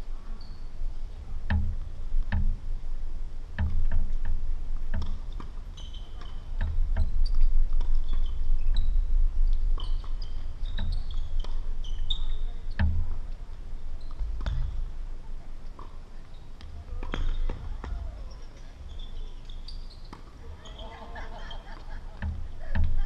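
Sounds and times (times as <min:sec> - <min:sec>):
tennis ball struck and bouncing: 0:22.2 - 0:23.0.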